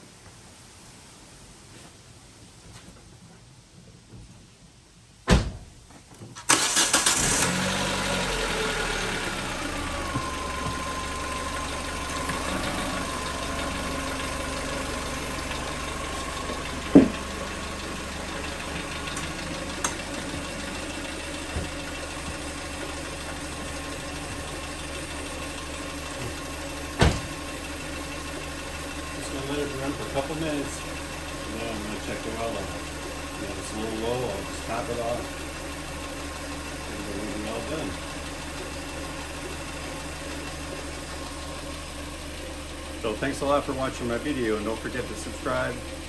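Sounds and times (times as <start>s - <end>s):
car engine starting and idling: 5.3s - 46.0s
single knocks: 16.9s - 17.3s.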